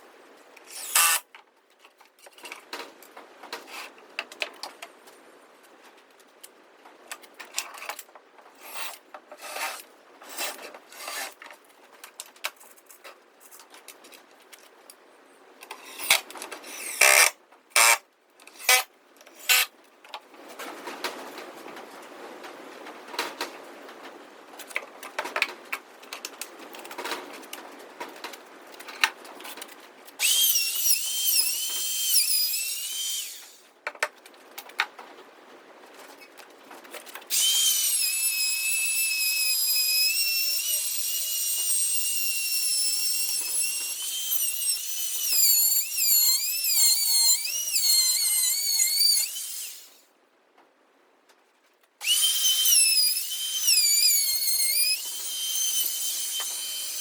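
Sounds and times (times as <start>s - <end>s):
power drill whining: 0.7s - 1.2s, 16.8s - 18.0s, 30.2s - 33.6s, 37.3s - 50.0s, 52.0s - 57.0s.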